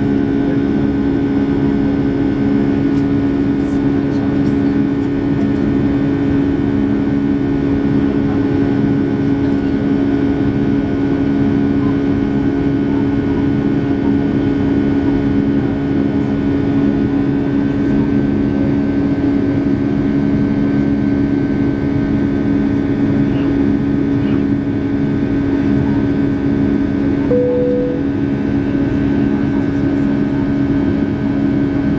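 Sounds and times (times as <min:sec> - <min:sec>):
faint high whine: 0:27.3 - 0:28.4.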